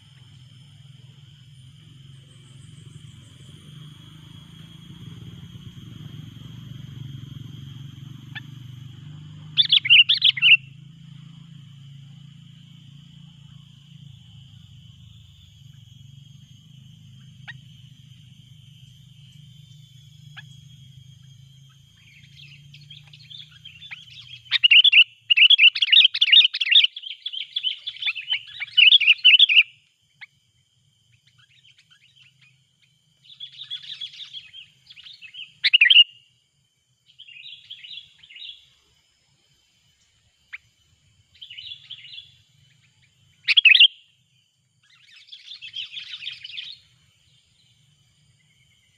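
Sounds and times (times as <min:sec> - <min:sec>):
bulbuls chattering calls: 0:07.9 - 0:10.7.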